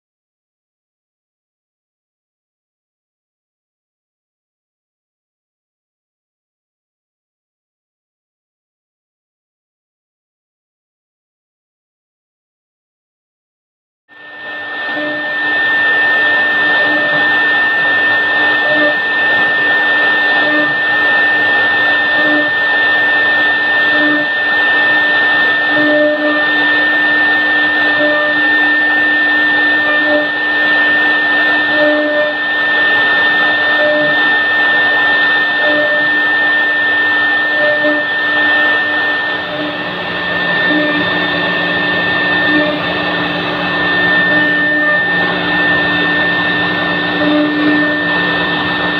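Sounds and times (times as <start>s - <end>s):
wood router high whine: 14.1s - 48.9s
low hum: 24.2s - 48.9s.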